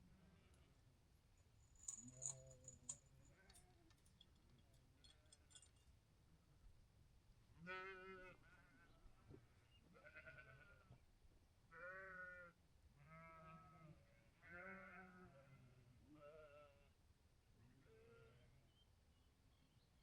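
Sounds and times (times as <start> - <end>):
sheep bleating faintly: 11.7 - 16.9.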